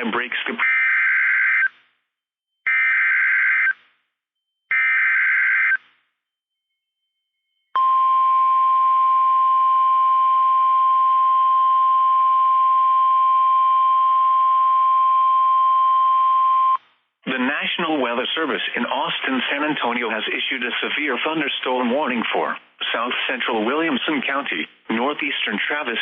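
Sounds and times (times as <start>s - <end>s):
steady alarm tone: 4.5s - 5.8s.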